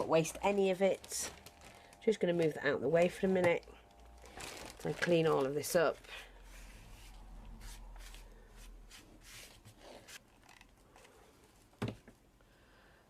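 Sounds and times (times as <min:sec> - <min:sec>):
hands brushing a desk: 0:06.5 - 0:10.2.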